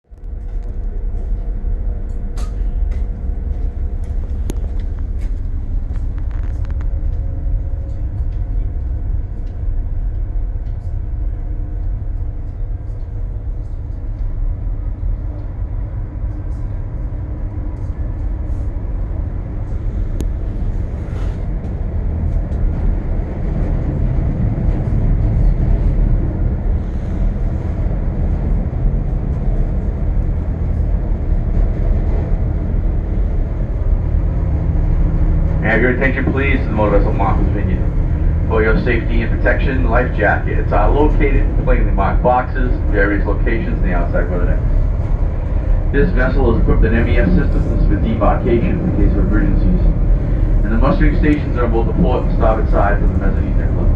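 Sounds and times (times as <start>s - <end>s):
ferry engines rumbling: 0.0s - 53.9s
light clicks and clanks: 0.2s - 14.3s.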